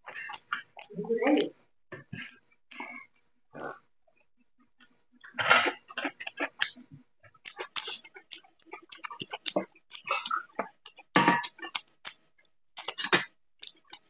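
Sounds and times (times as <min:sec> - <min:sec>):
chewing with wet mouth smacks: 0:00.0 - 0:01.5, 0:04.8 - 0:14.0.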